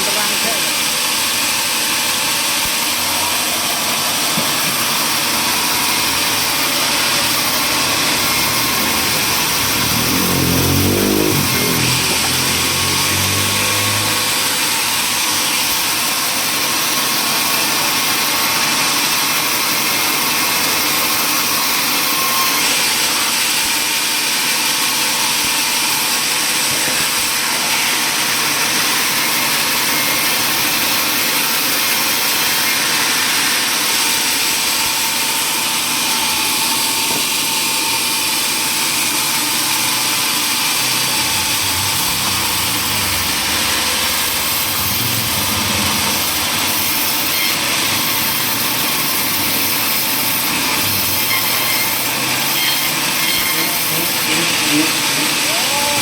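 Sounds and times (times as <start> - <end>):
sawmill machinery hissing: 0.0 - 55.8
low engine hum: 6.0 - 15.2, 39.8 - 47.2.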